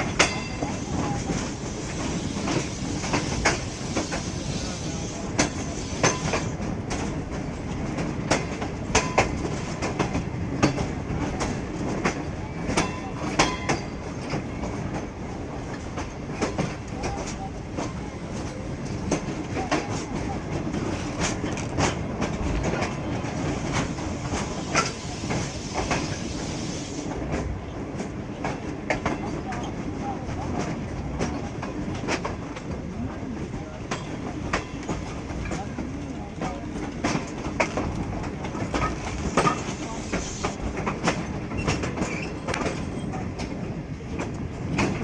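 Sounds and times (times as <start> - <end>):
wheels clicking over rail joints: 0.0 - 12.2, 20.8 - 27.5, 33.9 - 43.6
train rumbling on track: 0.0 - 45.0.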